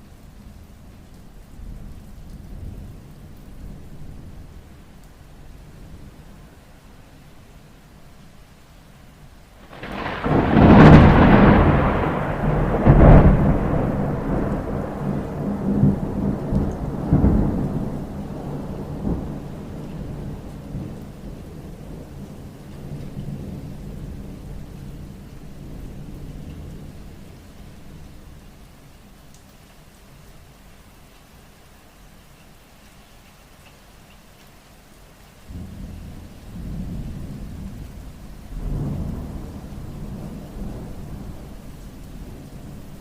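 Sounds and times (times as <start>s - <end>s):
steady rain: 0.0s - 43.0s
thunder clap and rumble: 9.6s - 27.2s, 35.5s - 43.0s.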